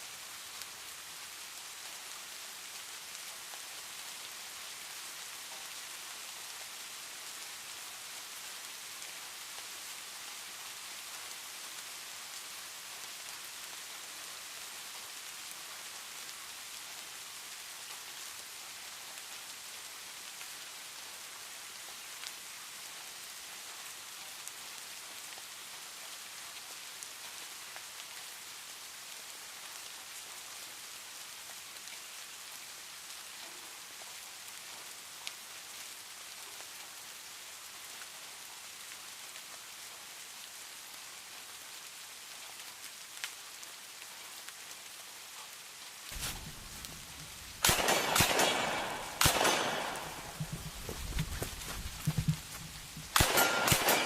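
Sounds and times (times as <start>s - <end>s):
rain falling on a surface: 0.0s - 54.0s
sharp crack: 46.1s - 54.0s.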